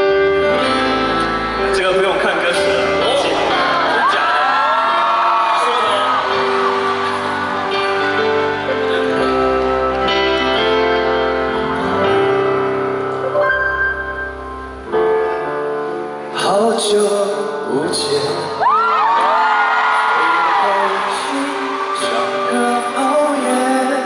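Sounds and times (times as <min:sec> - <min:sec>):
slow piano chords: 0:00.0 - 0:24.0
crowd cheering and whooping: 0:03.2 - 0:09.9, 0:18.6 - 0:24.0.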